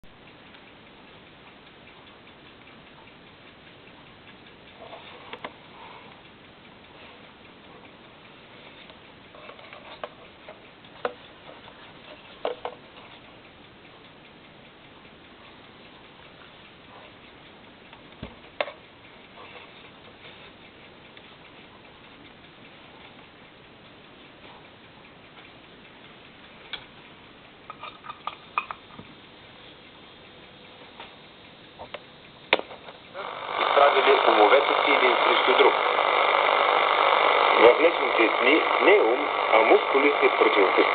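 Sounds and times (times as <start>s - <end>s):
faint steady hiss: 0.1s - 40.9s
clicks and crackles: 15.5s - 29.3s, 31.0s - 40.9s
radio static hiss: 32.6s - 40.9s.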